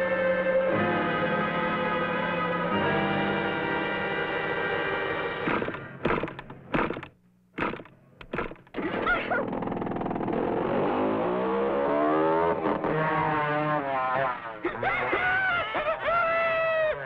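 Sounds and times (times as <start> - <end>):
small car engine speeding away: 9.5 - 14.6.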